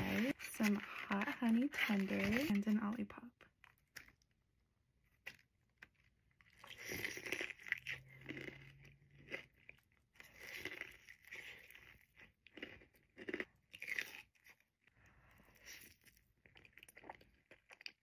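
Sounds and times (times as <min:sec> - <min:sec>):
crunching fried chicken: 0:05.1 - 0:18.0.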